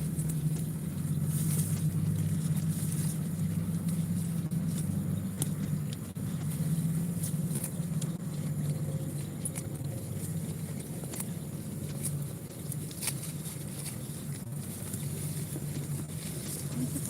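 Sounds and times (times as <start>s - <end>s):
goat biting off grass: 0.0s - 17.0s
steady low hum: 0.0s - 17.0s.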